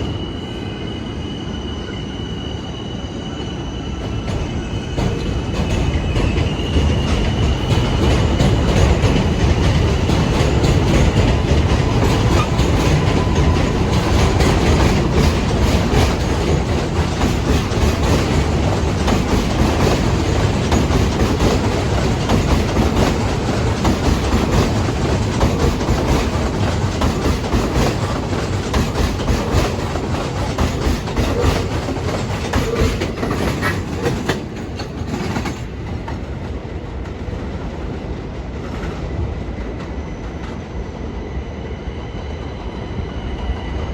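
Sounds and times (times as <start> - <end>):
subway train wheels clattering: 0.0 - 43.9.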